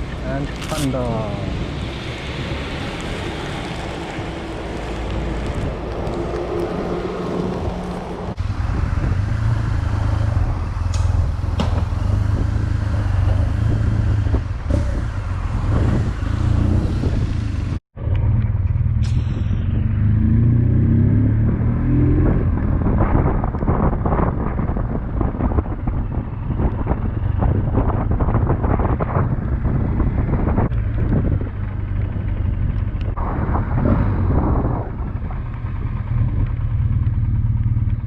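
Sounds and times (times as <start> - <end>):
wet road noise: 0.0 - 24.1
wind noise: 0.0 - 38.0
motorcycle engine humming: 1.4 - 38.0.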